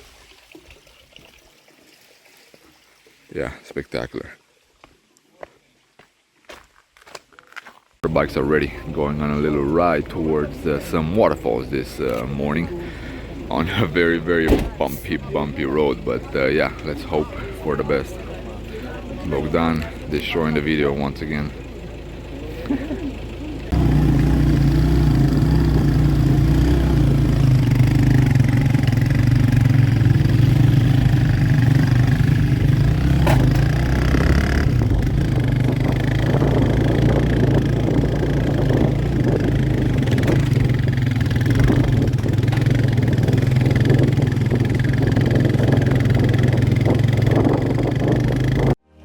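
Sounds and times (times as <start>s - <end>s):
knocks and rattles from bumpy road: 8.0s - 48.8s
motorcycle engine running: 8.0s - 49.0s.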